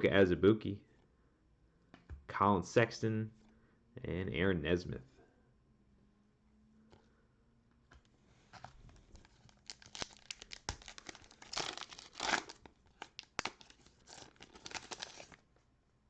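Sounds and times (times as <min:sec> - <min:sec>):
plastic wrapper tearing and crinkling: 0:08.6 - 0:15.4.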